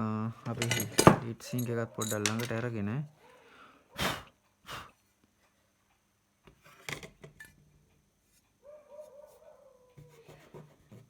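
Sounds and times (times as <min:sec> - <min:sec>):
metal parts scraping and clicking: 0:00.5 - 0:02.7.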